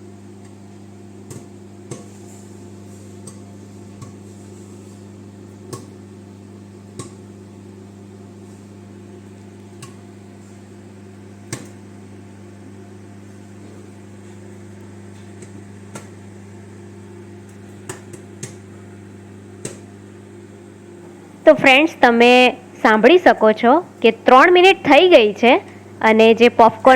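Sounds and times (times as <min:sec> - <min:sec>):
popcorn popping: 0:00.0 - 0:21.2
microwave oven humming: 0:00.0 - 0:26.9.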